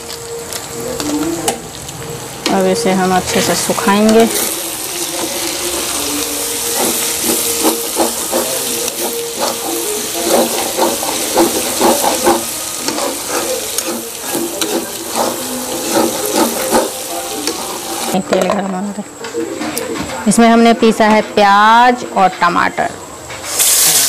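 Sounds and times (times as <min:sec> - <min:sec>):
meat sizzling in a pan: 0:00.0 - 0:18.2, 0:23.4 - 0:24.0
metal spatula scraping a pan: 0:03.3 - 0:18.2.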